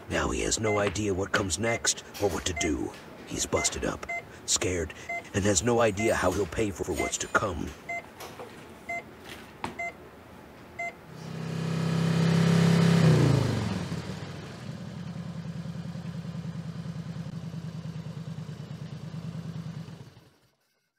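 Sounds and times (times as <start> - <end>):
patient monitor beeps: 0.5 - 8.1, 8.9 - 9.1, 9.8 - 10.0, 10.8 - 11.0
motorcycle engine revving and idling: 11.2 - 20.7.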